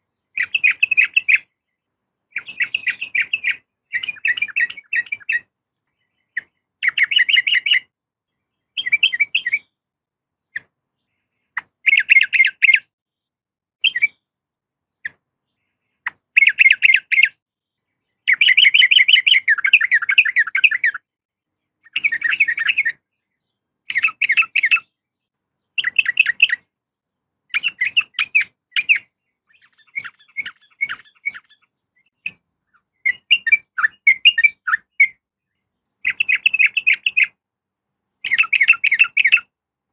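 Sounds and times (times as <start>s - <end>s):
bird chattering call: 27.6s - 31.7s.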